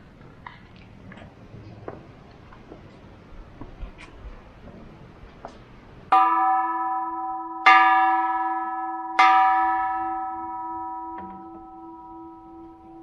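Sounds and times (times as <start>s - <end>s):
temple bell ringing: 6.1s - 13.0s.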